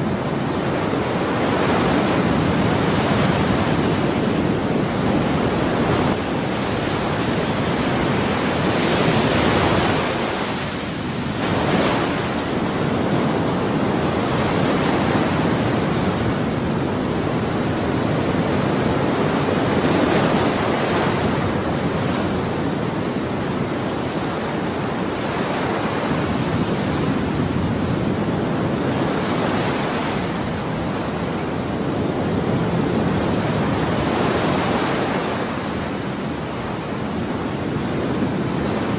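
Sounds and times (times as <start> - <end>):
ocean waves breaking: 0.0 - 38.9.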